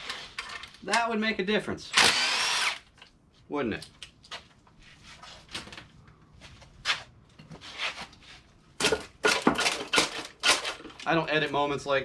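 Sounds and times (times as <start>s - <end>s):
tools and engine parts handled: 0.0s - 1.0s, 7.3s - 11.6s.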